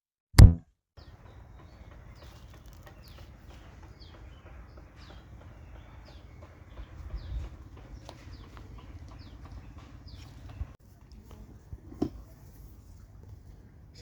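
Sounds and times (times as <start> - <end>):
bird chirping: 1.0 - 10.8.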